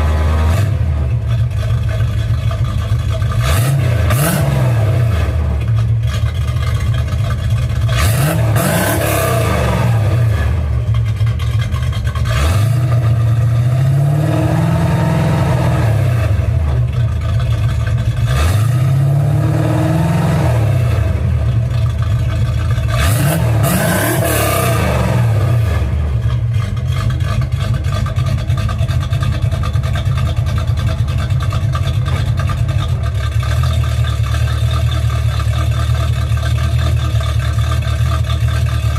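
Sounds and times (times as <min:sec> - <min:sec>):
car engine revving and idling: 0:00.0 - 0:38.9.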